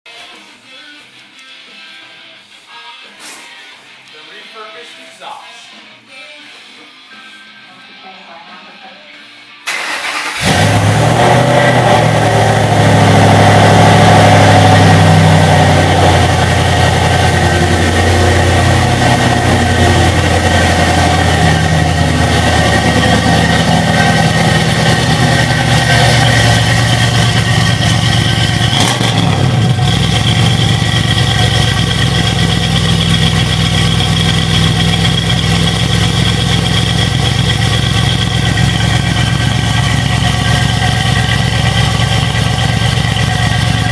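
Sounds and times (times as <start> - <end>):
car engine idling deep and loud: 10.4 - 43.9.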